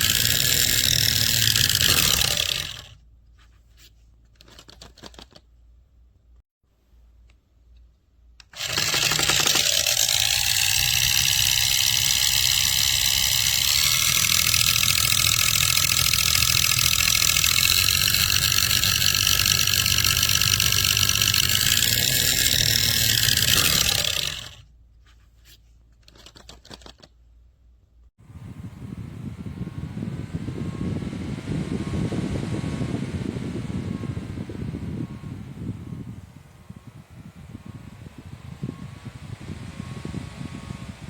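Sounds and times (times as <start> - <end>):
desk fan whirring: 0.0 - 3.0, 8.1 - 24.6, 28.2 - 41.0.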